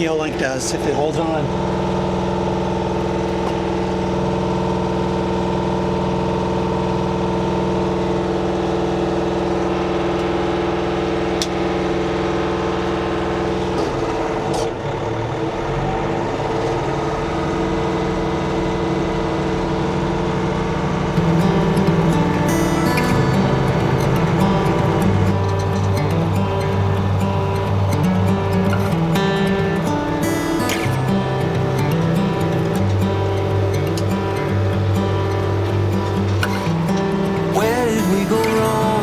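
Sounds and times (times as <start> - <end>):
tractor diesel engine running: 21.2 - 39.0.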